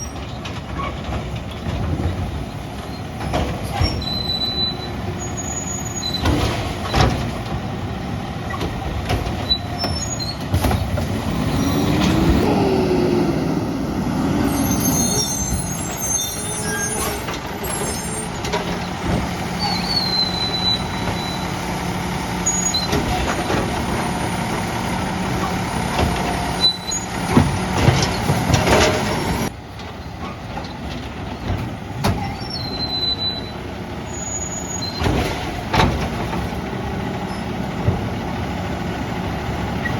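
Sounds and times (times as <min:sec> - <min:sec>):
diesel engine revving: 0:04.8 - 0:29.6
cart rattling and clattering: 0:14.6 - 0:33.3.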